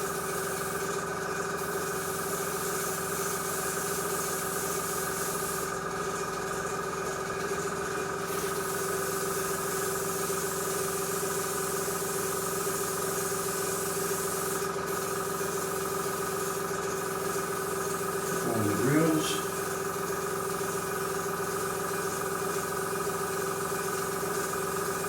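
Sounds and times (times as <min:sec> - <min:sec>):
air compressor humming: 0:17.0 - 0:20.8.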